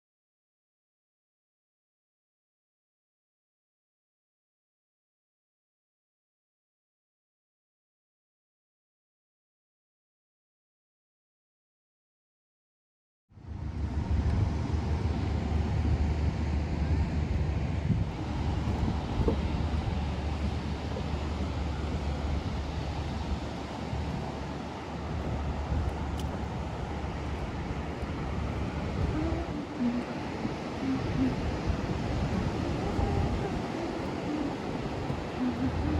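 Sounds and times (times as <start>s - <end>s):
ocean surf washing: 13.4s - 35.9s
wind buffeting microphone: 13.4s - 35.9s.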